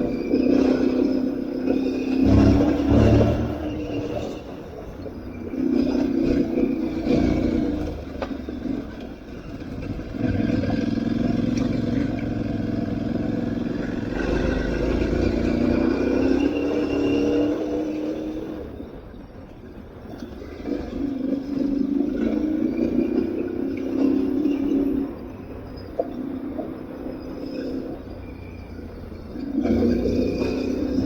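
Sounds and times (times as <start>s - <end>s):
motorcycle engine under throttle: 0.0s - 4.7s, 5.3s - 18.6s, 29.4s - 31.0s.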